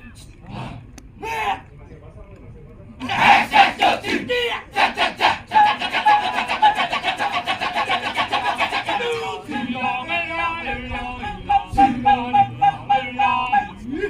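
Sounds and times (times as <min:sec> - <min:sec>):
chorus singing held notes: 0:03.0 - 0:14.0
male chorus chanting: 0:03.0 - 0:14.0.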